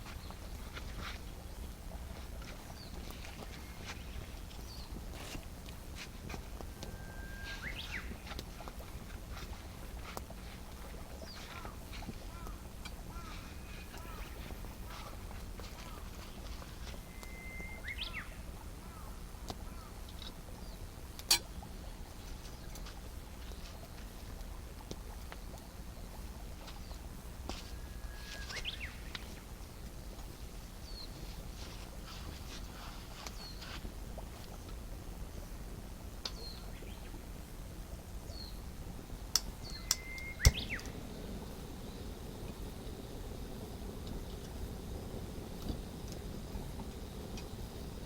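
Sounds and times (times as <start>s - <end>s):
birds chirping: 0.0s - 5.0s, 6.5s - 21.0s, 25.3s - 31.3s, 31.9s - 33.8s, 39.6s - 44.0s
steady low rumble: 0.0s - 28.2s, 40.6s - 48.0s
outdoor background noise: 0.0s - 48.0s
high bird chirps: 6.9s - 8.3s, 17.0s - 18.4s, 39.6s - 41.0s
sharp snap: 39.4s - 41.0s.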